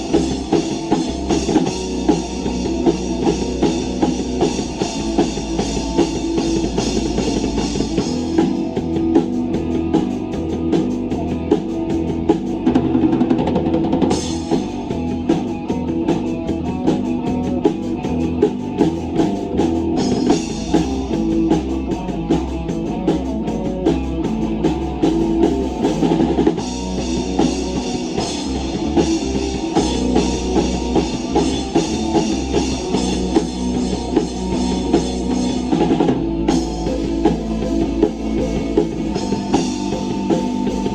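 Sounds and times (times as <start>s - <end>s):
drum kit steady beat: 0.0s - 40.9s
guitar: 0.0s - 40.9s
rock band playing: 0.0s - 40.9s.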